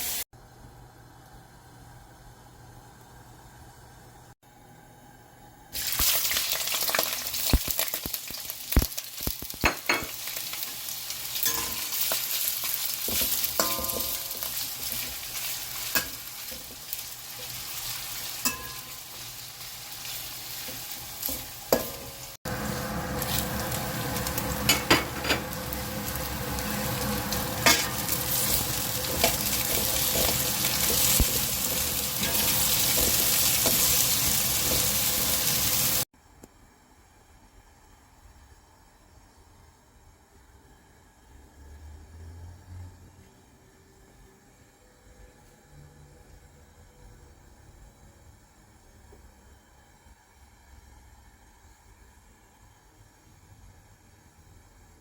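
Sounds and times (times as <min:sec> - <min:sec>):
food sizzling in a hot pan: 0:00.0 - 0:00.3, 0:05.8 - 0:36.1.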